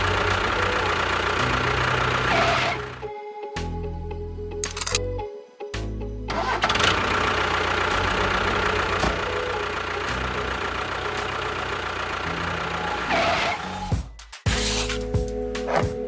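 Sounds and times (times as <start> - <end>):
motor whirring: 4.6 - 5.0.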